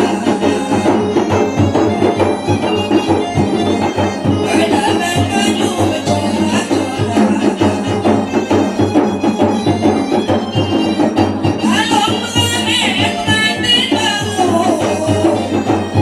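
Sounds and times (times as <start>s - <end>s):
person singing: 0.0s - 3.2s, 4.4s - 8.8s, 11.6s - 16.0s
hand drum beats: 0.0s - 16.0s
sustained melody: 0.0s - 16.0s.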